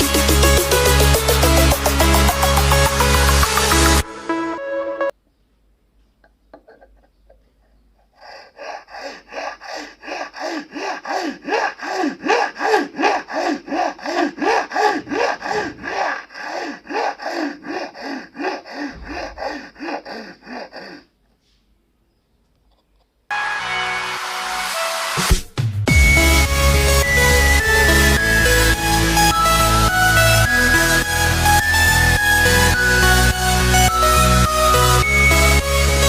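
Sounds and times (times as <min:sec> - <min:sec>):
hand saw cutting: 0:08.2 - 0:21.1.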